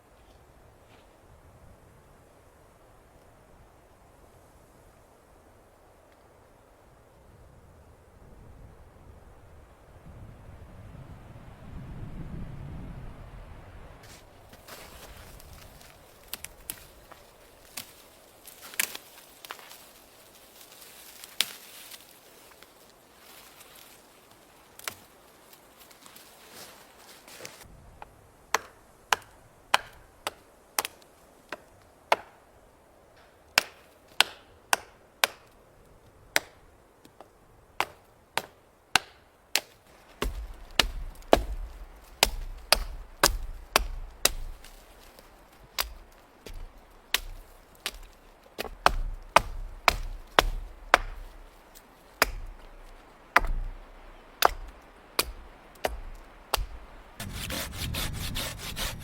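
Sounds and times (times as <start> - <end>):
wood being chopped: 14.0 - 19.8, 28.5 - 32.4, 33.2 - 35.5, 37.8 - 59.0.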